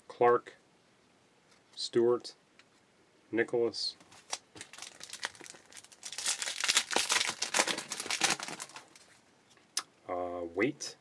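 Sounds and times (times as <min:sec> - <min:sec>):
card wrapper crinkling: 0:04.1 - 0:09.2.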